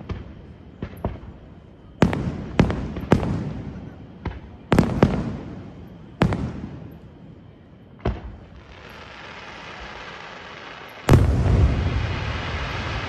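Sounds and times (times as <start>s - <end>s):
echoing rumble: 11.1s - 13.0s.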